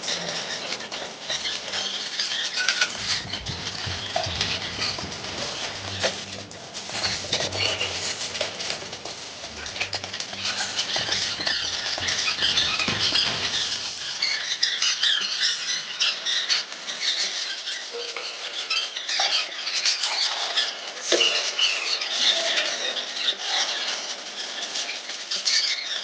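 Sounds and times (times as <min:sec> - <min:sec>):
plastering tool scraping wall: 0:00.1 - 0:15.2.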